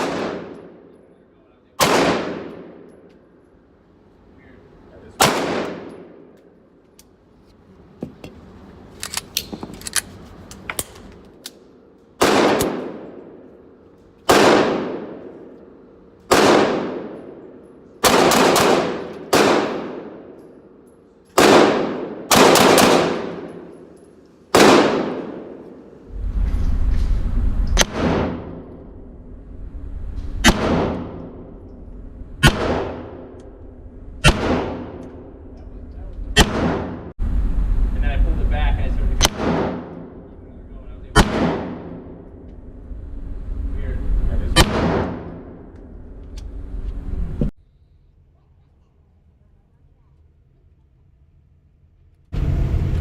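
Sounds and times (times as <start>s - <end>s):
handgun shots echoing: 1.8s - 3.0s, 12.2s - 13.3s, 14.2s - 15.4s, 16.3s - 20.5s, 21.3s - 25.8s.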